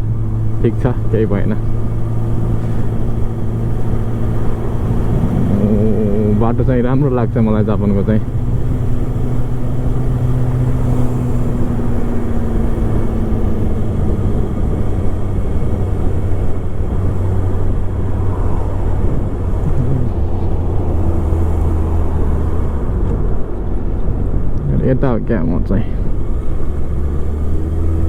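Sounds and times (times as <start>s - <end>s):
motorcycle engine running: 0.0s - 22.7s
wind rushing over microphone: 2.8s - 9.6s.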